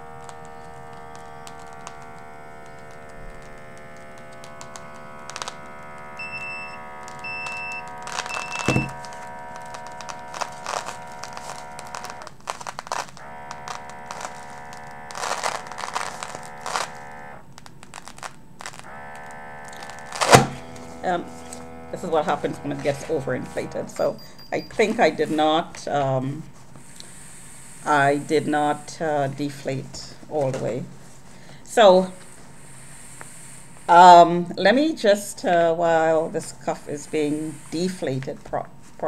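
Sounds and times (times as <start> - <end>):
handling clicks and crackles: 0.0 - 25.1
small air pump running: 0.0 - 25.9, 26.5 - 30.4, 31.0 - 38.3
short high beeps: 6.2 - 9.0.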